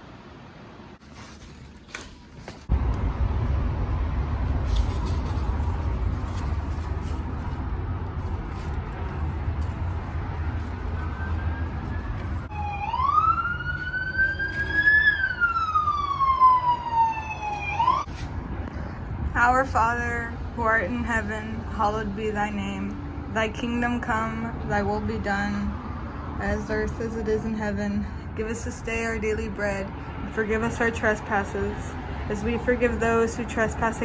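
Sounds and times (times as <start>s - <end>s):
steady low rumble: 2.6s - 23.5s
emergency vehicle siren wailing: 10.1s - 18.1s.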